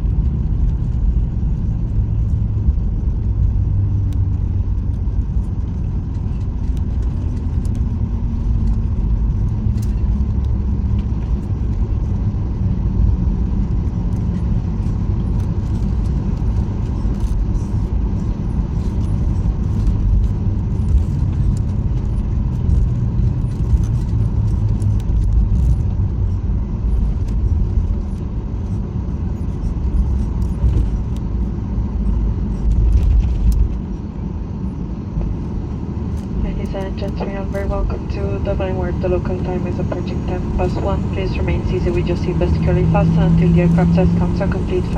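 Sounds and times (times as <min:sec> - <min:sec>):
airliner cabin rumble: 0:00.0 - 0:44.9
low engine tone sliding down: 0:36.5 - 0:44.9.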